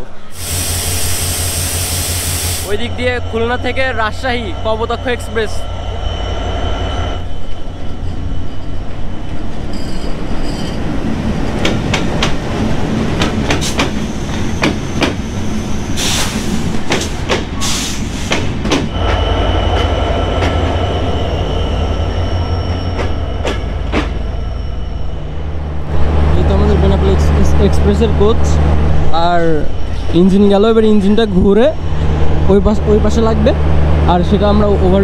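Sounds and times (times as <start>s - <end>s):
diesel locomotive hum: 0.0s - 35.0s
train rumbling past: 0.0s - 35.0s
loud hissing bursts: 0.3s - 2.8s.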